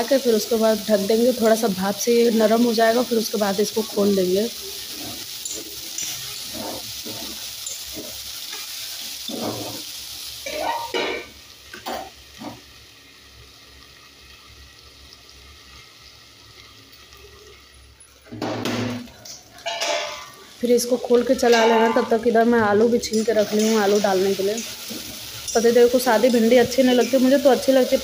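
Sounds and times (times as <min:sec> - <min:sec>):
okra sizzling in hot oil: 0:00.0 - 0:28.0
spatula scraping a metal pan: 0:04.8 - 0:08.6
metal plate clinking on pan: 0:10.5 - 0:11.3, 0:19.6 - 0:20.3, 0:21.4 - 0:22.2.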